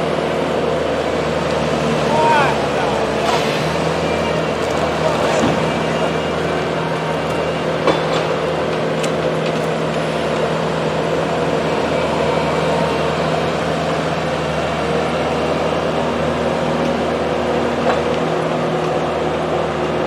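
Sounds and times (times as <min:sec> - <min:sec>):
heavy machinery engine running: 0:00.0 - 0:20.0.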